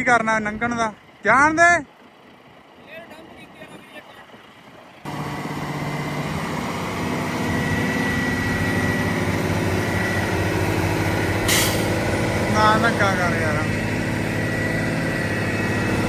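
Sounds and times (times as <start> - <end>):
diesel truck engine running: 0.0 - 16.0
short hiss: 11.5 - 12.0.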